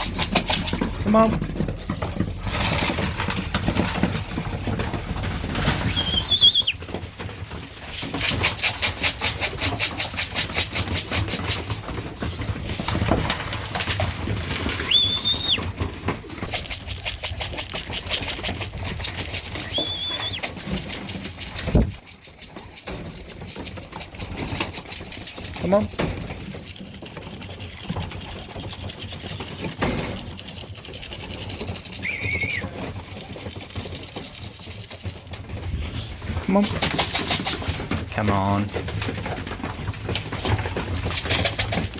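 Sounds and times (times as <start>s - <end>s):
pigeon wings flapping: 0.0s - 41.9s
high whistled notes: 5.9s - 6.8s, 19.6s - 20.4s.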